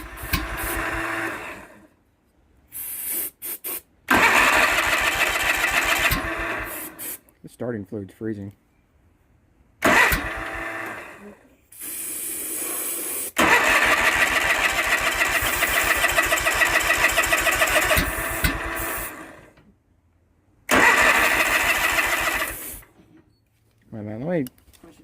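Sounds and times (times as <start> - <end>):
engine starter cranking: 0.0 - 1.7, 4.1 - 6.9, 9.8 - 11.2, 13.4 - 19.6, 20.7 - 23.0.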